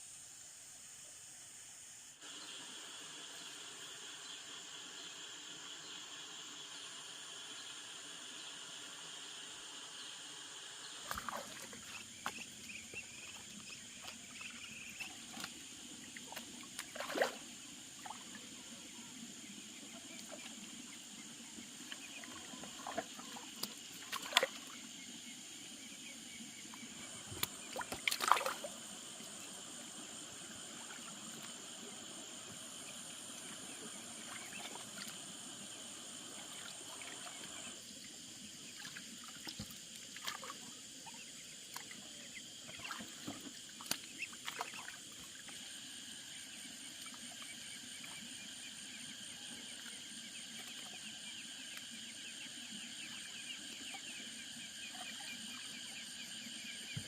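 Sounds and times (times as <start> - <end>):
high insect drone: 0.0 - 57.0
sharp water splashes: 11.0 - 12.4, 16.3 - 17.4, 27.4 - 28.8
water sloshing and trickling: 11.0 - 18.4, 21.8 - 24.9, 26.7 - 28.8, 34.2 - 35.2, 38.7 - 40.7, 42.7 - 45.6.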